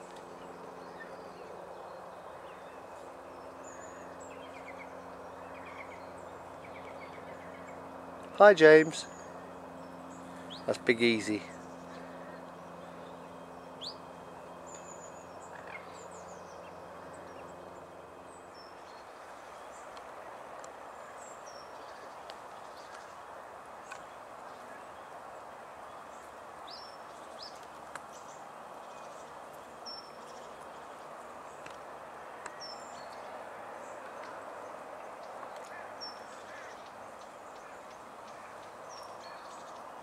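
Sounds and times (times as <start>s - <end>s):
steady background hiss: 0.0s - 40.0s.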